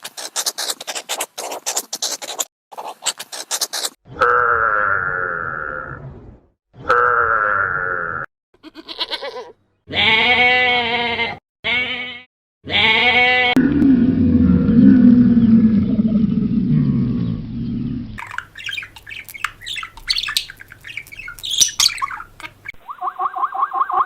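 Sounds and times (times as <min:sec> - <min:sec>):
wavering animal calls: 0:12.7 - 0:24.0.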